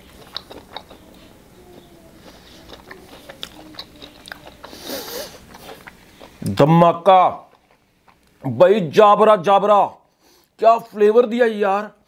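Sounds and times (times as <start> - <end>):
man chewing with wet mouth clicks: 0.0 - 6.6, 7.4 - 8.4.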